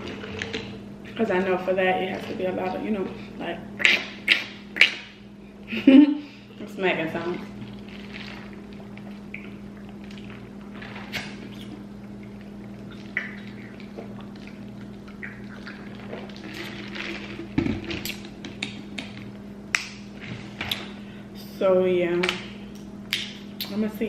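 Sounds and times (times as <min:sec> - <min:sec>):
steady low hum: 0:00.0 - 0:24.0
person chewing: 0:07.6 - 0:19.2.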